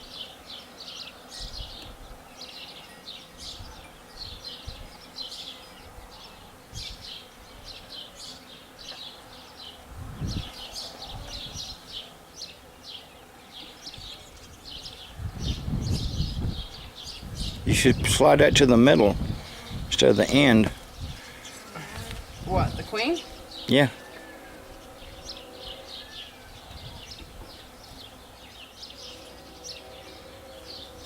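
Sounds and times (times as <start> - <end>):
honeybees buzzing: 0.0 - 31.0
bird chirping: 20.9 - 31.0.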